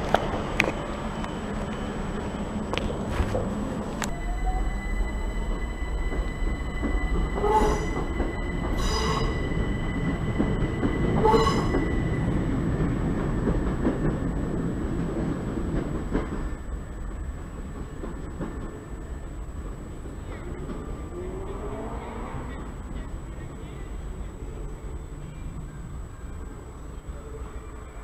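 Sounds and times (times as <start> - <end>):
train rumble: 0.0 - 28.0
short high squeals: 4.1 - 12.3.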